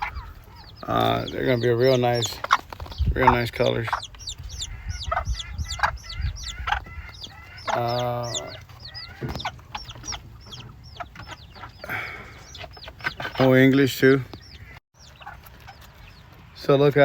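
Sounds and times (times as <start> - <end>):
adult chicken call: 0.0 - 2.6, 3.2 - 13.5
chicks peeping: 0.0 - 17.0.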